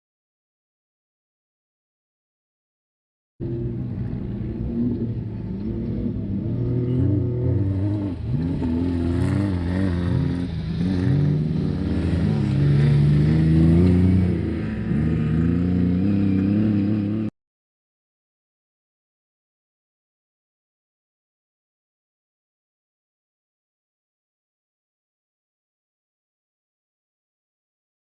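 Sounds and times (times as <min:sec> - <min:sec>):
race vehicle engine revving: 0:03.4 - 0:17.3.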